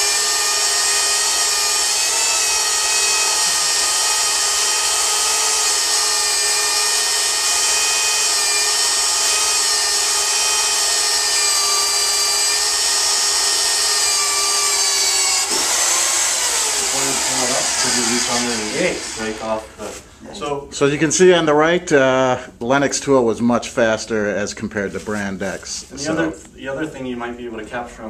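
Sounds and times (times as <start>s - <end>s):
drill hole saw cutting wood: 0.0s - 19.6s.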